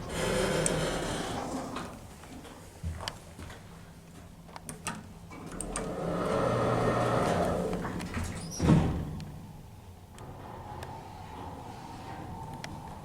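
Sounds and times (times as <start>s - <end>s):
lift doors sliding: 5.3s - 13.0s
lift doors thud shut: 5.4s - 9.5s.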